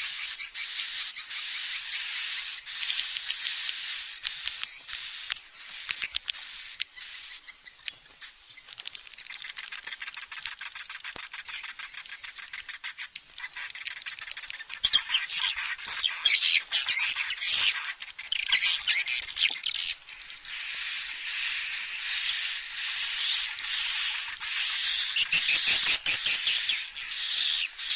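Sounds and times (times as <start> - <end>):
swiftlet twittering: 18.5 - 27.9.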